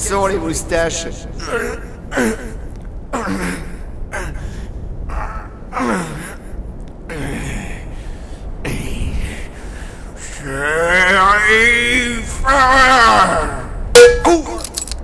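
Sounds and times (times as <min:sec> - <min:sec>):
man groaning and gasping: 0:01.4 - 0:08.0.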